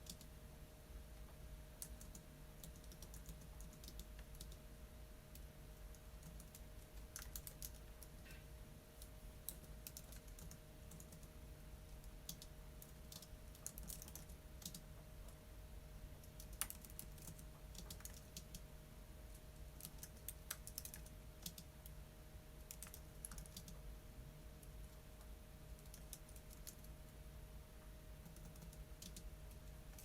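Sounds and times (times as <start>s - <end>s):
typing on computer keyboard: 0.0s - 0.3s, 1.8s - 4.6s, 5.3s - 8.2s, 9.4s - 11.3s, 11.9s - 14.9s, 16.2s - 18.6s, 19.3s - 22.0s, 22.6s - 23.8s, 25.8s - 27.0s, 28.2s - 30.0s
steady low hum: 0.0s - 30.0s.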